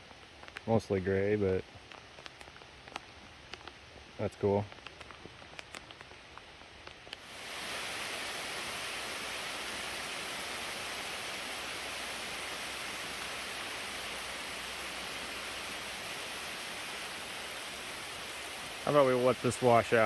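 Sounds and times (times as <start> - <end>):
raindrop ticks: 0.0 - 7.2
heavy rain falling: 7.2 - 20.0.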